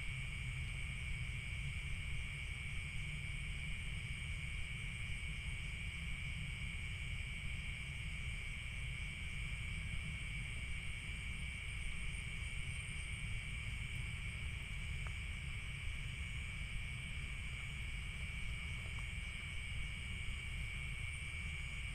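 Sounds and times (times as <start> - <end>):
crickets and insects chirring: 0.0 - 21.9.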